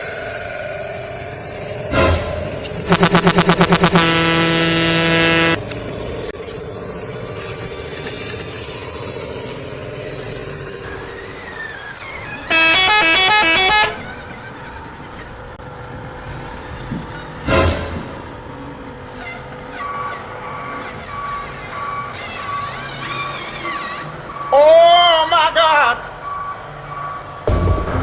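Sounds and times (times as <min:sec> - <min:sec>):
bus horn blast: 0:02.9 - 0:05.6, 0:12.4 - 0:14.3
multi-note musical horn tune: 0:02.9 - 0:05.6, 0:12.5 - 0:14.0.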